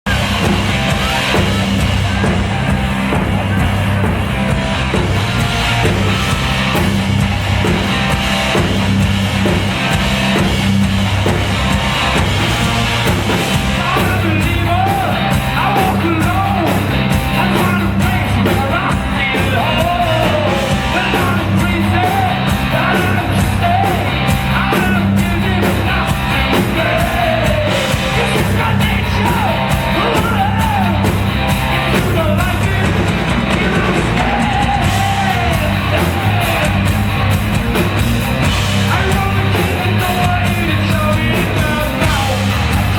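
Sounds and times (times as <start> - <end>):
distorted guitar and bass riff: 0.0 - 42.9
drum and cymbal beat: 0.1 - 42.9
person singing: 13.6 - 31.2, 31.8 - 37.0.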